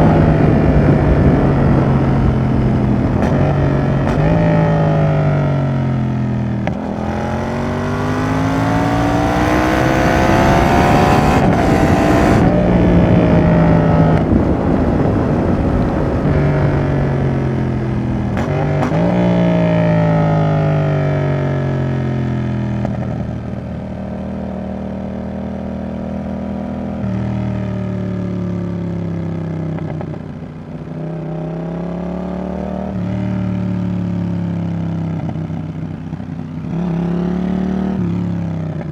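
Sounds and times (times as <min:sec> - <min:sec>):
motorcycle engine accelerating: 0:00.0 - 0:38.9
wind rushing: 0:06.8 - 0:18.7.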